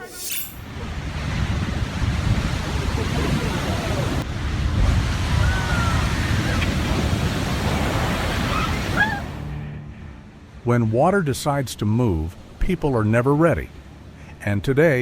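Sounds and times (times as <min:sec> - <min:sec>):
water surging and rushing: 0:00.6 - 0:09.6
wind buffeting microphone: 0:00.8 - 0:09.1.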